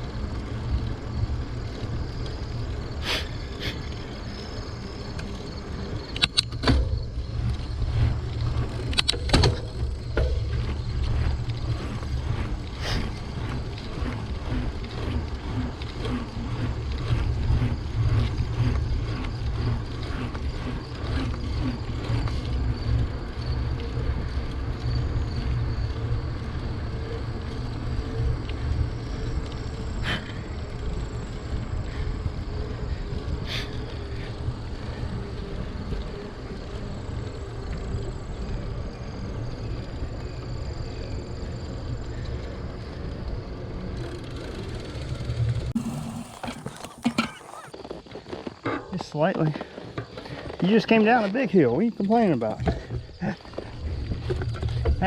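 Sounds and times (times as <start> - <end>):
tyre and road noise: 0.0 - 40.2, 41.4 - 55.0
bike knocking: 6.2 - 19.2, 45.8 - 47.7.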